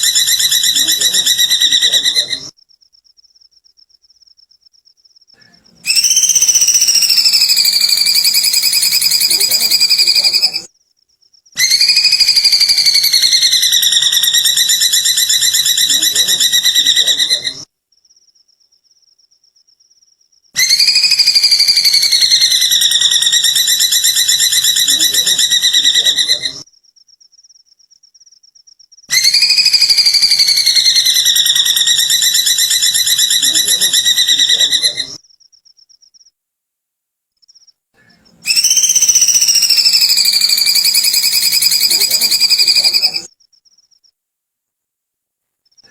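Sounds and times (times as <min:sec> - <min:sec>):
bird rattling trill: 0:05.9 - 0:10.7, 0:38.5 - 0:43.3.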